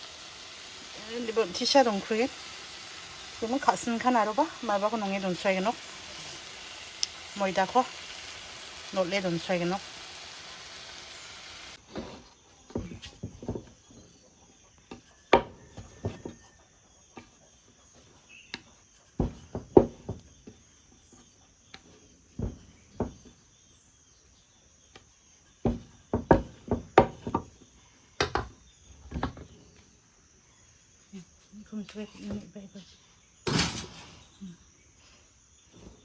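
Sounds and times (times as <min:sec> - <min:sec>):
crickets chirring: 0:00.0 - 0:36.0
kitchen things clattering: 0:33.5 - 0:34.4.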